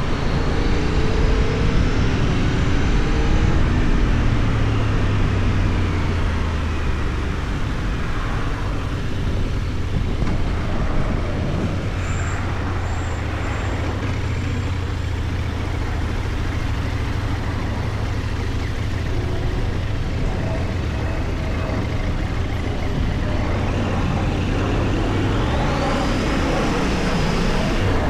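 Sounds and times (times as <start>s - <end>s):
motorcycle engine running: 0.0s - 28.0s
wind noise: 0.0s - 28.0s.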